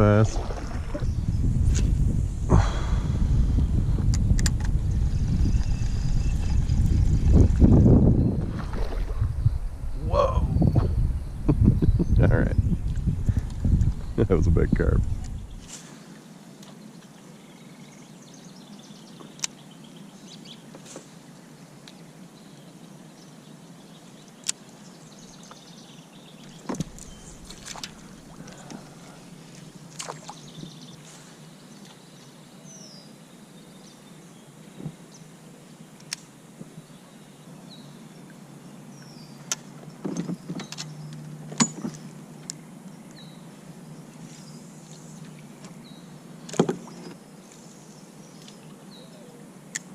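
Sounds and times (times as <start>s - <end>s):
steady low rush: 1.1s - 8.1s.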